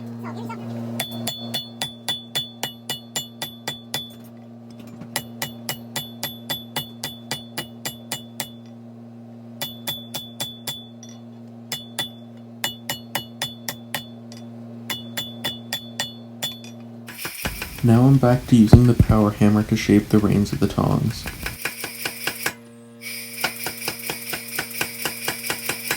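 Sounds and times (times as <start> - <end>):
hammer ringing on anvil: 1.0 - 4.2
steady low hum: 17.4 - 21.6.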